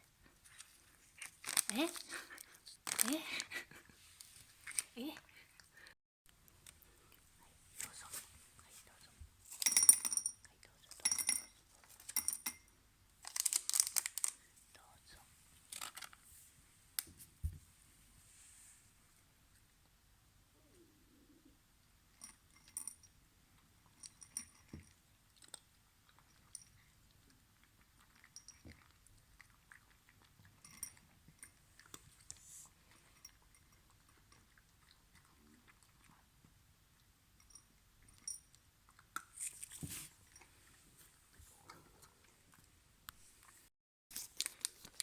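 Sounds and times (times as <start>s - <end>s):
cat crunching dry treats: 0.5s - 3.6s, 13.2s - 14.5s, 15.7s - 16.2s, 44.1s - 45.0s.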